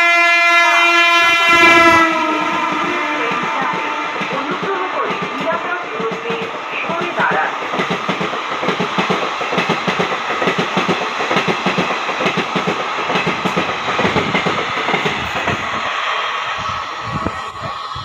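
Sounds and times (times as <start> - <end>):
train wheels clickety-clack: 1.8 - 16.2.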